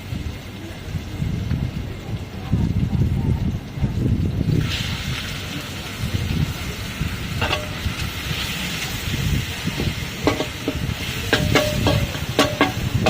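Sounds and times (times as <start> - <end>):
food sizzling in a wok: 0.0 - 13.0
metal spatula clanking on wok: 7.4 - 7.8, 10.2 - 13.0.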